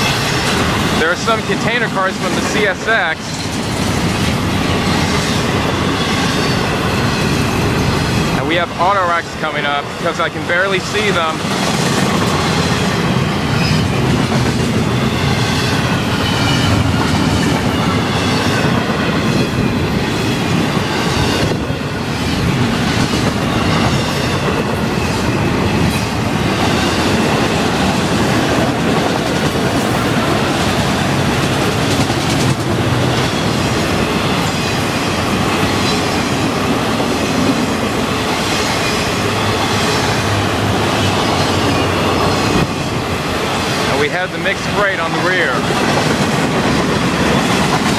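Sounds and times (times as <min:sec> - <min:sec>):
train wheels rumbling and rattling: 0:00.0 - 0:47.9
wheel clacks: 0:28.2 - 0:33.5.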